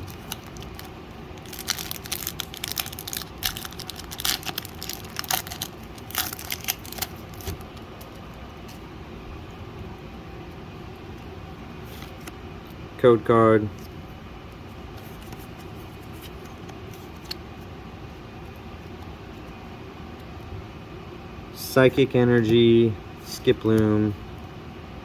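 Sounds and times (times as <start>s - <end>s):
foil wrapper crinkling and tearing: 0.0s - 8.2s
low room hum: 0.0s - 25.0s.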